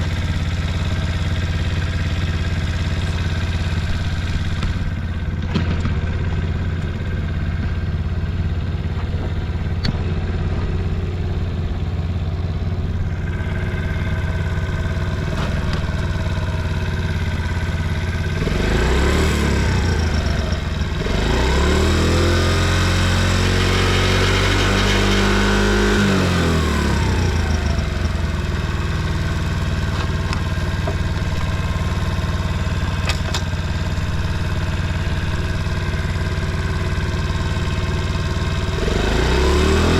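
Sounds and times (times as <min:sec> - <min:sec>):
small engine idling and revving: 0:00.0 - 0:39.9.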